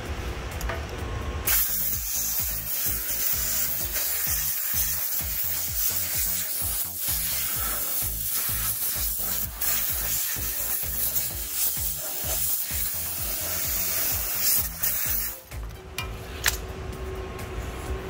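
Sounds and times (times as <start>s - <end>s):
compressed-air blow gun hissing: 1.5s - 15.6s.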